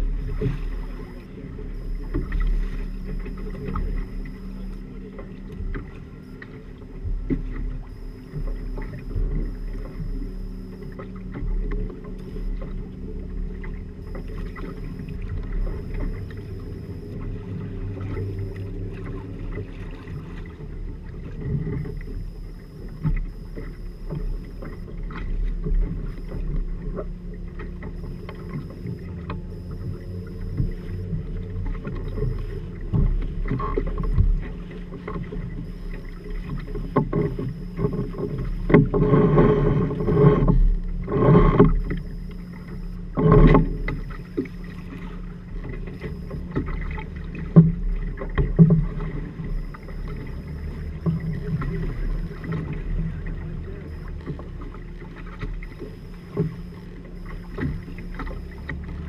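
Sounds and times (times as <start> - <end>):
steady low hum: 0.0 - 59.0
water rushing against boat hull: 0.0 - 59.0.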